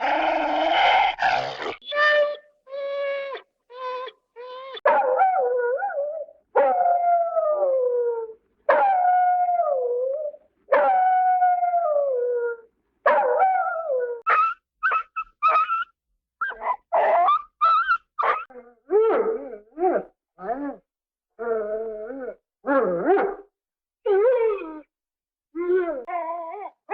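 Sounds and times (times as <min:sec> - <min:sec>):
cartoon dog howls: 0:00.0 - 0:12.6, 0:13.3 - 0:20.8, 0:24.0 - 0:24.9, 0:25.6 - 0:26.9
short dog yelps: 0:14.3 - 0:18.4.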